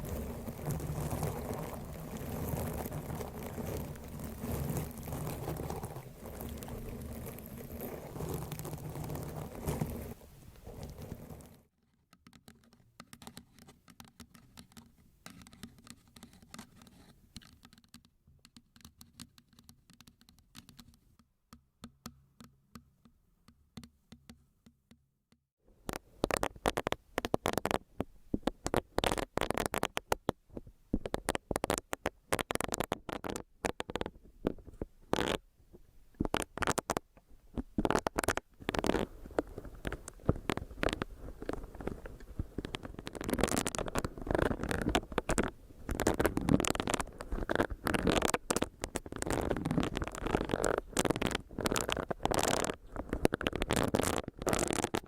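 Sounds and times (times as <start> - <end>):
soft rustles: 0.0 - 11.6, 36.3 - 55.0
scratching and tapping: 0.0 - 21.2, 25.8 - 35.4, 36.2 - 55.0.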